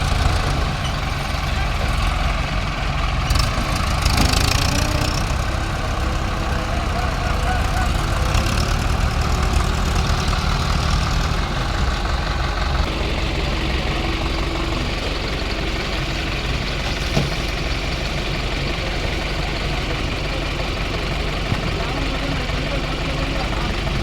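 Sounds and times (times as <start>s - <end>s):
heavy diesel engines running: 0.0s - 24.0s.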